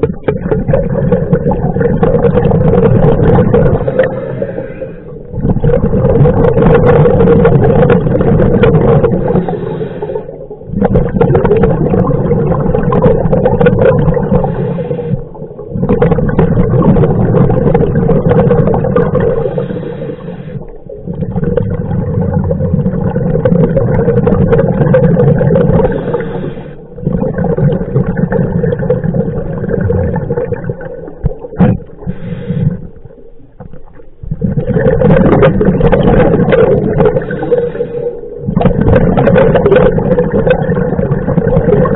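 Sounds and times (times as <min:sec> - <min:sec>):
bubbling breath noise: 0:00.0 - 0:41.9
diver breathing through regulator: 0:03.6 - 0:05.4, 0:09.0 - 0:10.6, 0:14.3 - 0:15.4, 0:19.2 - 0:20.9, 0:25.8 - 0:27.0, 0:32.0 - 0:33.1, 0:37.0 - 0:38.5.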